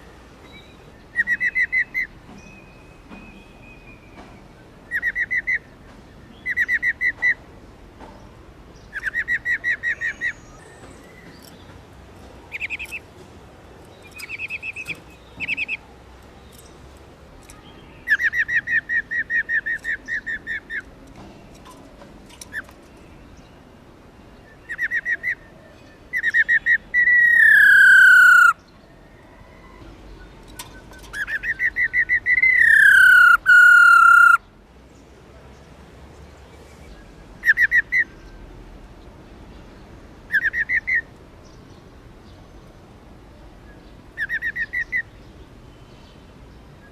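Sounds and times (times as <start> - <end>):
bird rattling calls: 21.5 - 23.0, 30.5 - 34.4.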